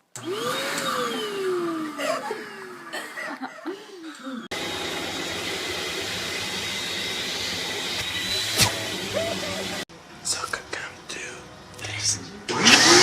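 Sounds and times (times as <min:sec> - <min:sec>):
vacuum cleaner running: 0:00.0 - 0:03.1, 0:04.5 - 0:09.9, 0:12.5 - 0:13.0
people laughing: 0:01.8 - 0:04.5, 0:09.0 - 0:09.9.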